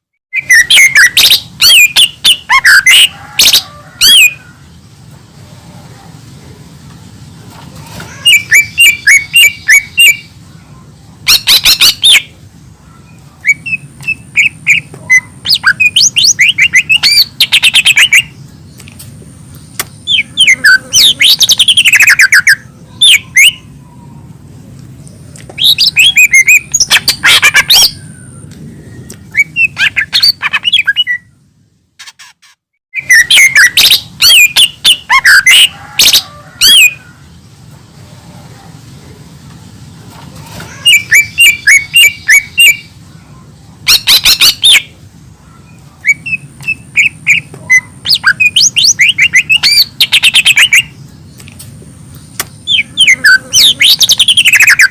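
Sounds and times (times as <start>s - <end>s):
bird chirping trills: 0.0s - 5.2s, 8.1s - 37.8s, 40.7s - 54.9s
low steady hum: 1.1s - 32.0s.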